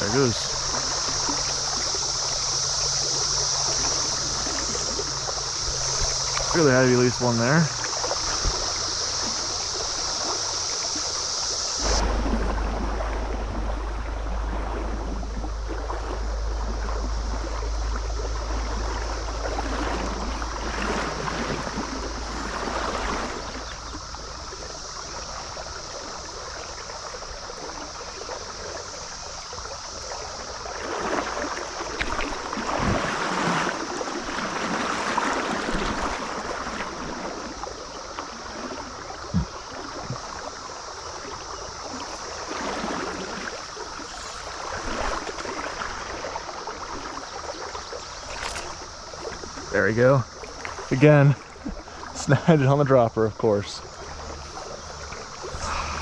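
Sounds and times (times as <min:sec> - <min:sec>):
stream water running: 0:00.0 - 0:56.0
low rumble: 0:11.8 - 0:24.1.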